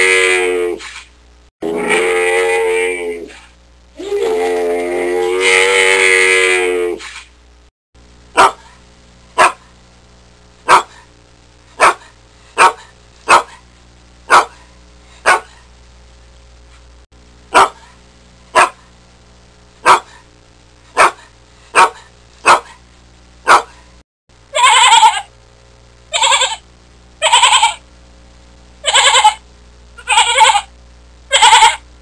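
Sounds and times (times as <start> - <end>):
dog barking: 8.4 - 8.8, 9.4 - 9.7, 10.7 - 11.1, 11.8 - 13.6, 14.3 - 15.6, 17.5 - 17.9, 18.5 - 18.9, 19.8 - 20.2, 21.0 - 22.8, 23.4 - 23.8
sheep bleating: 24.6 - 25.3, 27.2 - 27.8, 28.8 - 29.4, 30.0 - 30.7, 31.3 - 31.8.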